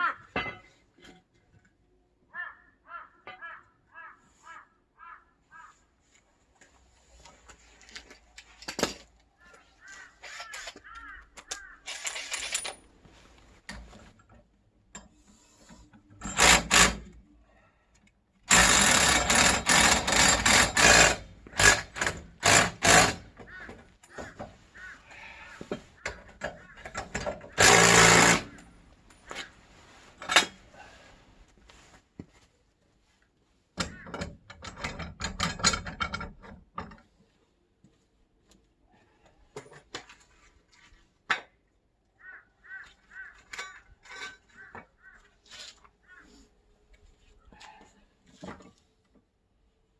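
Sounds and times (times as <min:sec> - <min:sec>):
power tool rattling and hammering: 0:10.2 - 0:12.8, 0:16.2 - 0:17.2, 0:18.5 - 0:24.6, 0:25.6 - 0:29.5, 0:30.2 - 0:30.6, 0:33.8 - 0:37.0.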